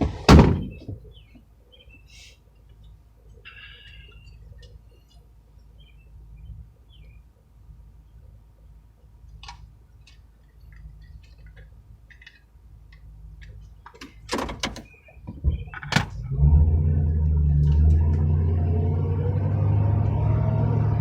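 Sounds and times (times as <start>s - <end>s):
car door thunks: 0.0s - 1.0s
vehicle engine starting and running: 15.5s - 21.0s.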